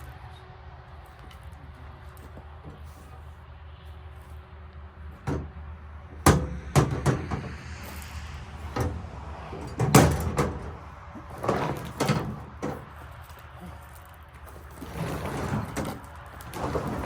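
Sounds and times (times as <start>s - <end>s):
heavy table saw knocking and banging: 5.3s - 5.6s, 6.2s - 7.6s.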